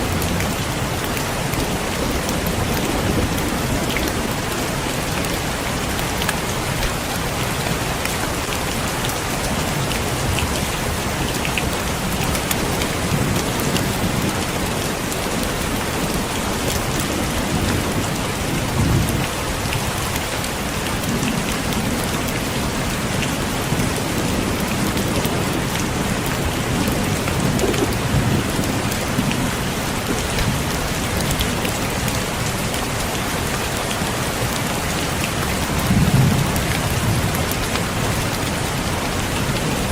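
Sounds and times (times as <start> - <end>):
heavy rain: 0.0 - 39.9
thunder rumbles: 21.0 - 31.2, 35.7 - 39.9.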